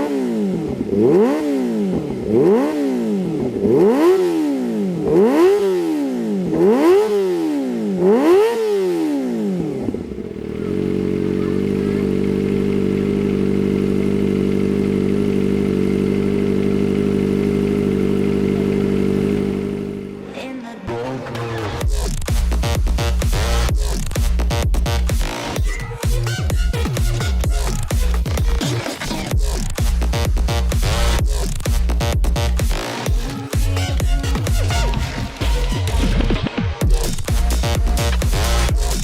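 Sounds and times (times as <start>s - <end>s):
motorcycle engine revving and idling: 0.0s - 39.0s.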